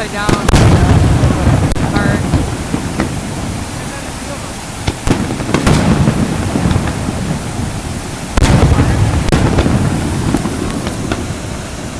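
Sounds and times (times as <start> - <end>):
firework deep boom: 0.0 - 11.9
firework sharp cracks: 0.0 - 11.9
steady rushing noise: 0.0 - 11.9.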